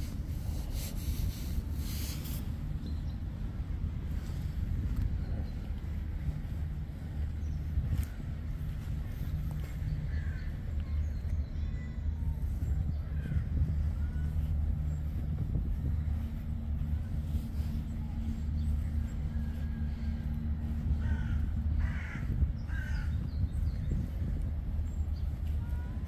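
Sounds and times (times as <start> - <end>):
steady low hum: 0.0 - 26.0
harsh bird calls: 16.2 - 26.0.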